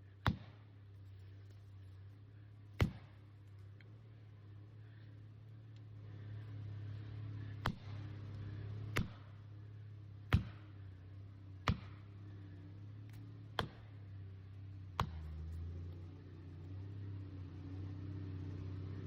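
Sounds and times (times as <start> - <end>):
low steady hum: 0.0 - 19.0
tool striking wood: 10.3 - 10.6, 11.6 - 12.0.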